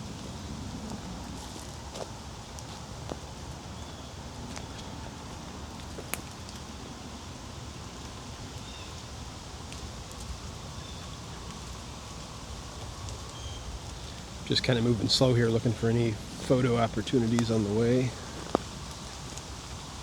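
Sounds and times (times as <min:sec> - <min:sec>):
drops falling from trees: 0:00.0 - 0:20.0
low rustle: 0:08.9 - 0:20.0.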